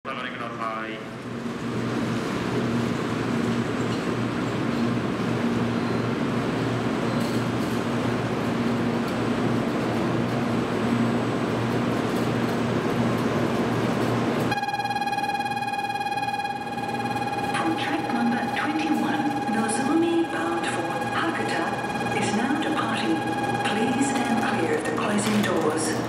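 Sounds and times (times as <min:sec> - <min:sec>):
standing train hum: 0:00.1 - 0:26.0
electronic departure bell ringing: 0:14.5 - 0:26.0.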